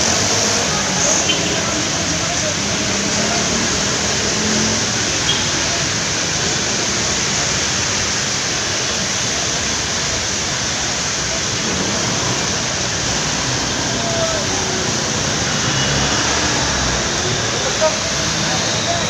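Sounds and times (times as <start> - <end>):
dense road traffic roar: 0.0 - 19.0.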